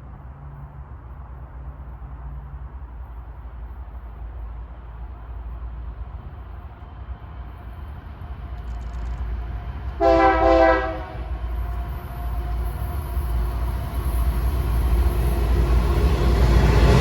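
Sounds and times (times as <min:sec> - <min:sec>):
train rumble: 0:00.0 - 0:17.0
locomotive air horn blast: 0:10.0 - 0:11.3.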